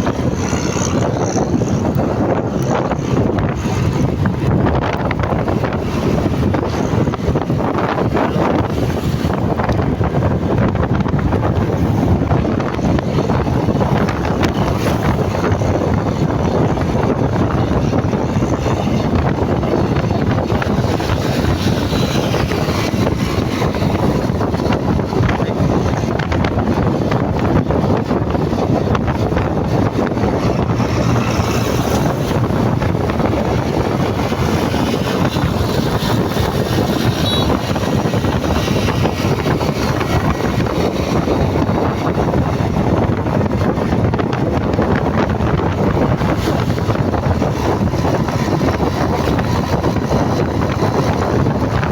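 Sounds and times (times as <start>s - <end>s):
motorcycle engine: 0.0s - 51.9s
wind buffeting microphone: 0.0s - 51.9s.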